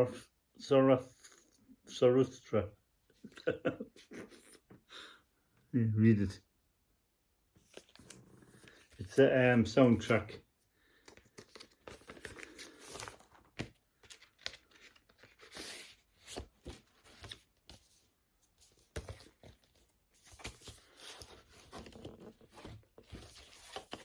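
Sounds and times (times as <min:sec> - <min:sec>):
record sleeve rustling and crinkling: 0:07.6 - 0:09.2, 0:10.0 - 0:24.0.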